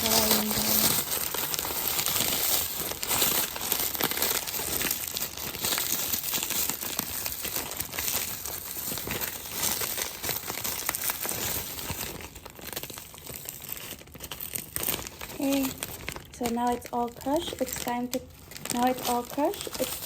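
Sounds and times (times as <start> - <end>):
crackers crunching: 0.0 - 20.0
plastic bag crinkling: 0.0 - 20.0.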